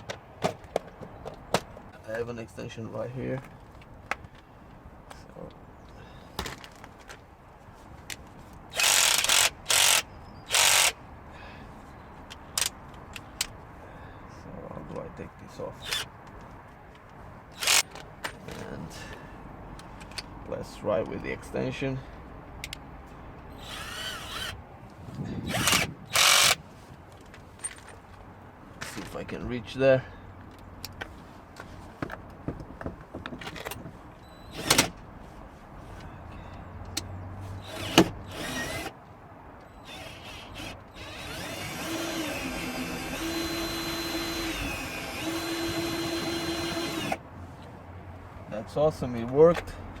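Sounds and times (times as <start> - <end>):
power drill-driver bursts: 8.7 - 11.0, 17.6 - 17.9, 23.6 - 24.6, 25.5 - 26.6, 37.6 - 38.9, 39.8 - 47.2.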